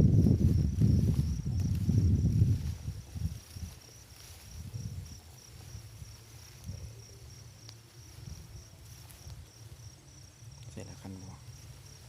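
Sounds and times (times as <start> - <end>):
cricket chirping: 0.0 - 12.0
rustling and handling noise: 0.2 - 9.9.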